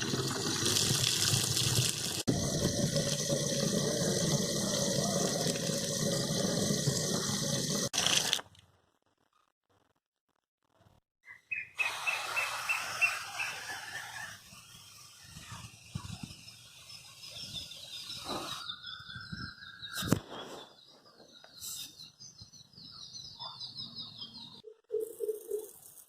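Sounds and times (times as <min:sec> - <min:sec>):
small birds chirping: 0:14.6 - 0:25.9.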